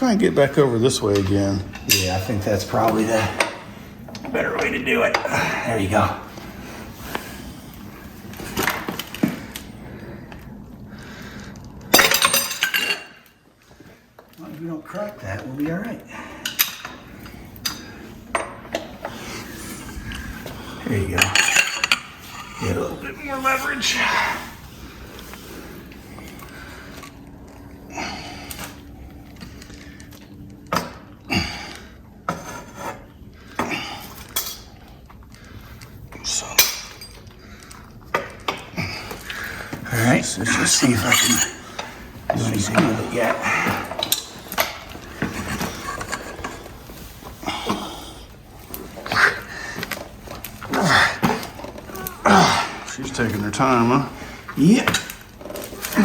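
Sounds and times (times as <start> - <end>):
metallic clanks and clinks: 21.2 - 22.2, 40.7 - 42.9.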